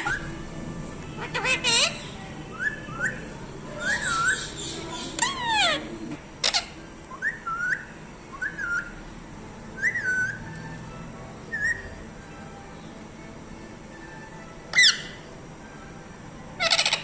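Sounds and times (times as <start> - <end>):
parrot whistling: 0.0 - 0.3, 1.2 - 9.0, 9.8 - 12.0, 14.7 - 15.3, 16.6 - 17.0.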